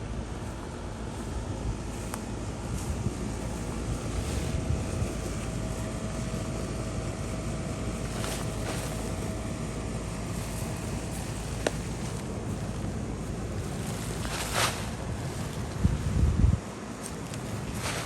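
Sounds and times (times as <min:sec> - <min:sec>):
wind buffeting microphone: 0:01.4 - 0:07.1, 0:14.9 - 0:16.8.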